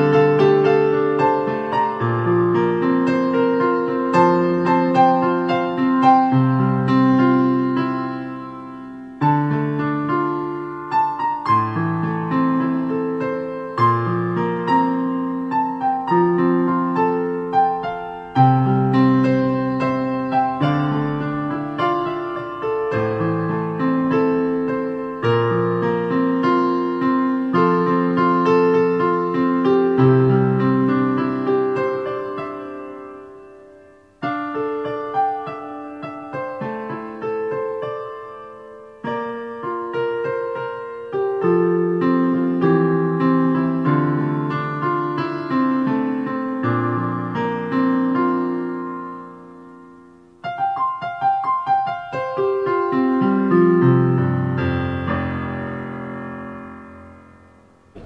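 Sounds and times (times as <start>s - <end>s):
slow piano music: 0.0s - 58.0s.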